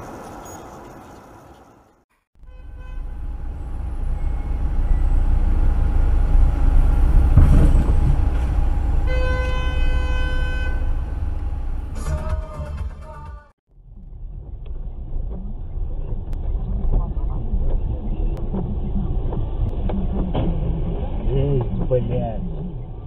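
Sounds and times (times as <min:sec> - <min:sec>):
vehicle horn blast: 0:02.4 - 0:03.3, 0:09.0 - 0:11.1
heavy vehicle rumbling past: 0:03.0 - 0:12.0.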